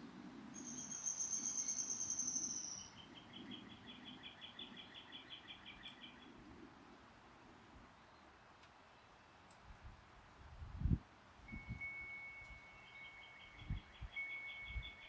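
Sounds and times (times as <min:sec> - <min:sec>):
high bird trill: 0:00.6 - 0:03.1.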